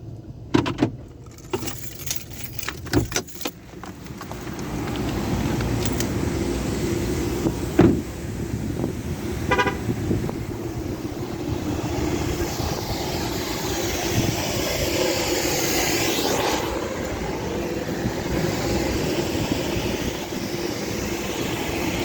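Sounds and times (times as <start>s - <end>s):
car wash equipment rushing: 0.3s - 22.0s.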